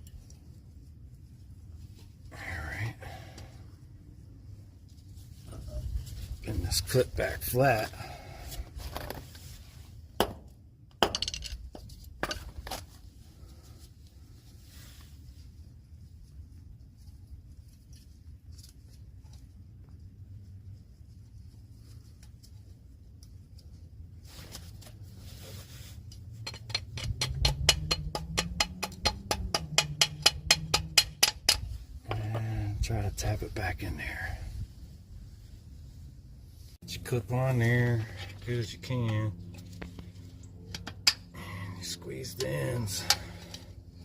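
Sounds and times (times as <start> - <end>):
low hum: 25.0 - 44.0
sharp metallic clinks and taps: 26.4 - 31.7.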